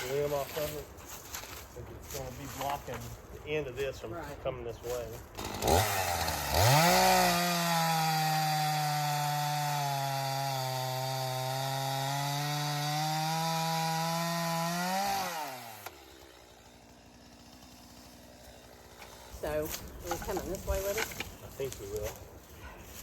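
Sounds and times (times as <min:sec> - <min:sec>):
chainsaw cutting wood: 0:05.3 - 0:21.9
chainsaw engine winding down: 0:05.4 - 0:19.3.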